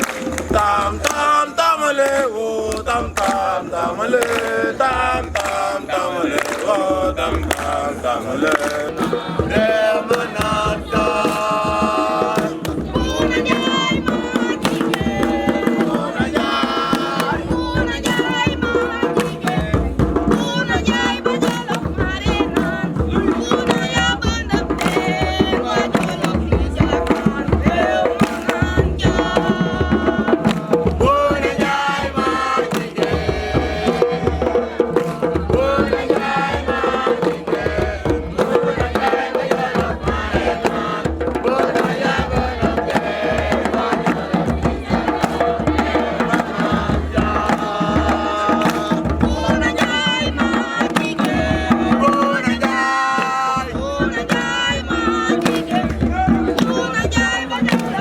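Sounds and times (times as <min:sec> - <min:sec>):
hand drum beats: 0:00.0 - 0:01.5, 0:02.1 - 0:58.0
voices singing a chant: 0:00.0 - 0:58.0.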